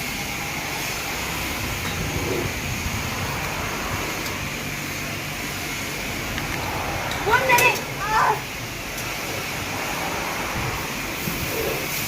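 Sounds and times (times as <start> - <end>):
foaming brush hissing and humming: 0.0 - 12.0
pump running: 0.0 - 12.0
water spray: 8.2 - 12.0.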